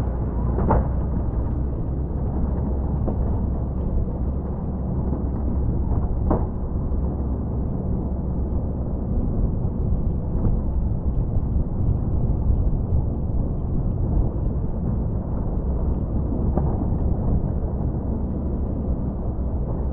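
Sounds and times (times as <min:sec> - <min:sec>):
truck engine rumbling: 0:00.0 - 0:19.9.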